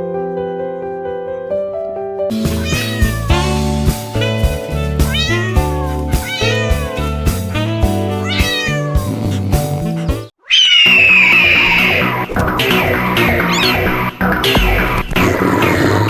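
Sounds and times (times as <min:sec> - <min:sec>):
cat meowing: 0:02.5 - 0:07.4, 0:08.1 - 0:12.3, 0:13.4 - 0:14.0
loud sound: 0:10.8 - 0:16.0
background music with steady beat: 0:11.8 - 0:16.0.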